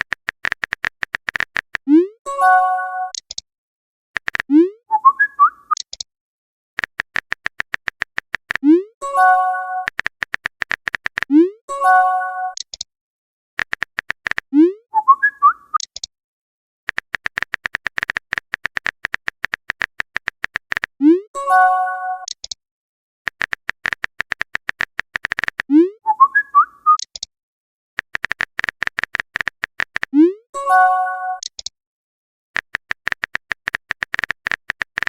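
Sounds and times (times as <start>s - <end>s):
rapid typing clicks: 0.0s - 1.8s, 4.2s - 4.5s, 6.8s - 8.7s, 9.8s - 11.3s, 13.6s - 14.5s, 16.9s - 21.0s, 23.3s - 25.7s, 28.0s - 30.1s, 32.6s - 35.0s.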